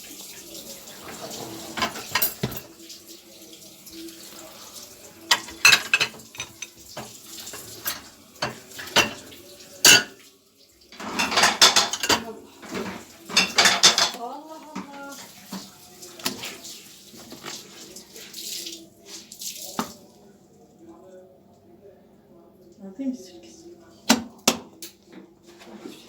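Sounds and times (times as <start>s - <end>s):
dishes and cutlery clattering: 0.9s - 2.8s, 5.2s - 10.2s, 10.9s - 17.8s.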